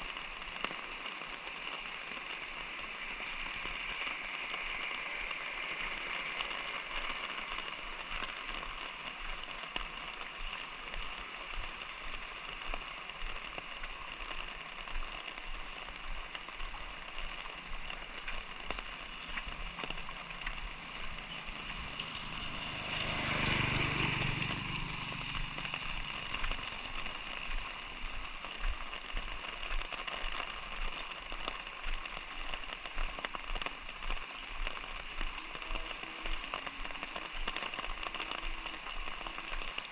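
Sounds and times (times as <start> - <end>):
light rain pattering: 0.0 - 39.9
vehicle passing by: 20.2 - 26.8.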